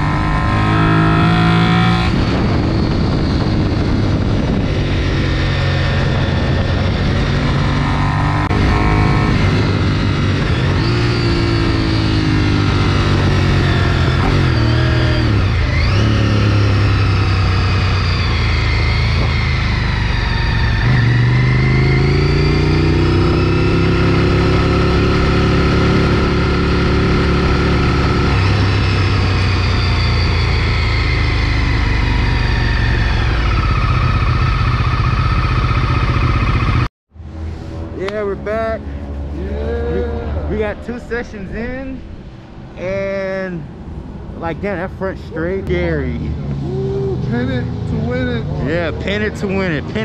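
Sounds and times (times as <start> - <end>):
motorcycle engine revving through gears: 0.0 - 39.4.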